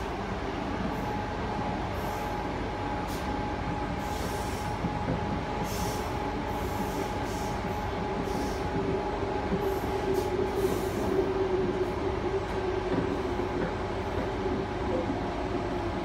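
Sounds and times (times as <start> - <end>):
train interior rumble: 0.0 - 16.0.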